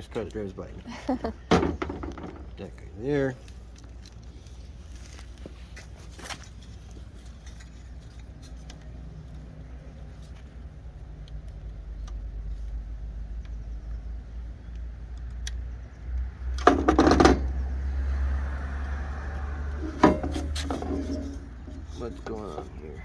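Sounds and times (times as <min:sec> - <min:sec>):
car passing: 0:16.0 - 0:23.0.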